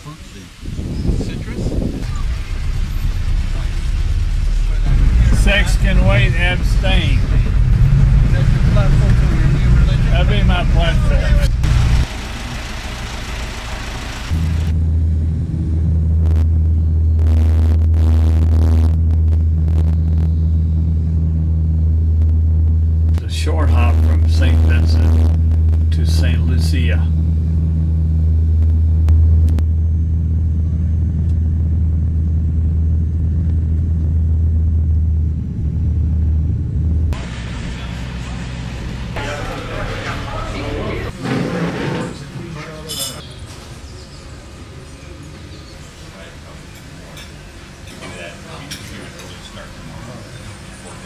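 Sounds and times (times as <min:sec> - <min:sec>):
plane engine drone in cabin: 0:01.9 - 0:41.2.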